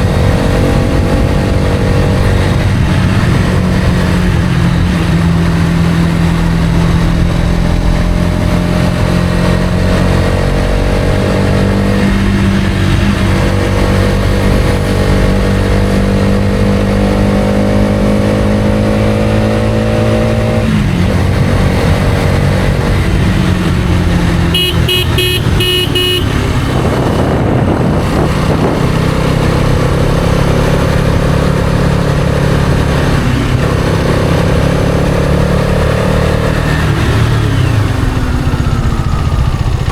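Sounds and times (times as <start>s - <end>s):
motorcycle engine running: 0.0s - 39.9s
short horn beeps: 24.5s - 26.6s.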